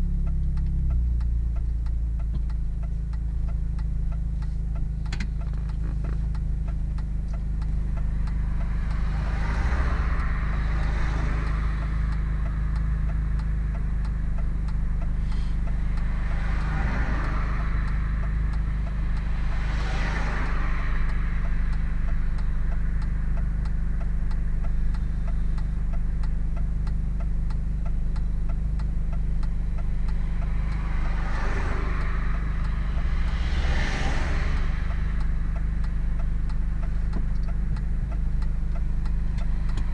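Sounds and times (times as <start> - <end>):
car engine droning: 0.0 - 39.9
faint regular ticking: 0.0 - 39.9
rushing noise: 29.9 - 37.0.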